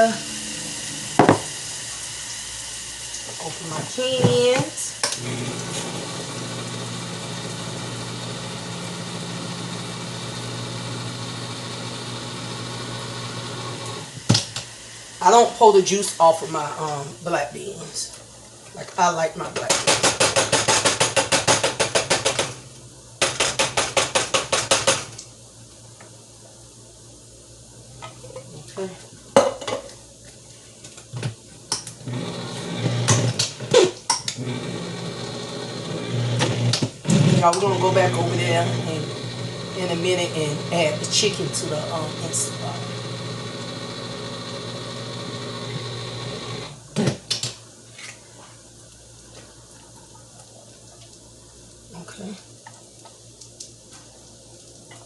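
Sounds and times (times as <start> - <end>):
kitchen appliance motor hum: 0.0 - 17.2, 31.9 - 46.9.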